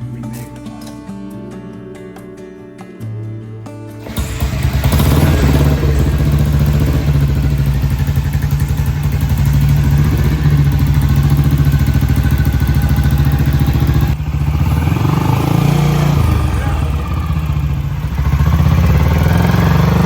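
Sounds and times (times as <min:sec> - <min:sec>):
motorcycle engine fast idle: 0:04.0 - 0:20.0.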